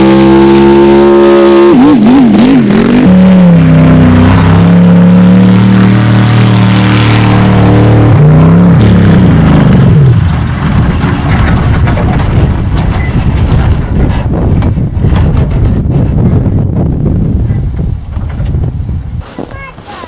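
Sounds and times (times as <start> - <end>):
diesel truck engine revving: 0.0 - 17.3
loud rough noise: 0.0 - 20.0.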